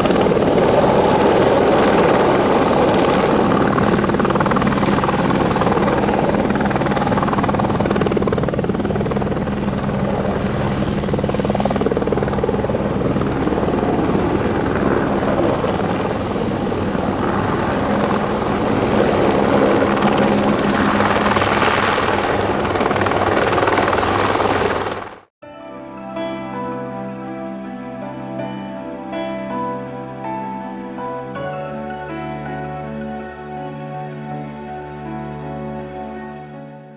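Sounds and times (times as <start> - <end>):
soft music: 0.0 - 20.2, 25.4 - 36.9
helicopter engine tone: 0.0 - 25.2
helicopter rotor beating: 0.0 - 25.3.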